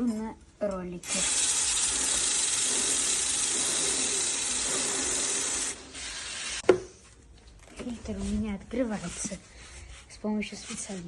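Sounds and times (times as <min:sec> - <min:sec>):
aerosol spray hissing: 0:01.0 - 0:06.6.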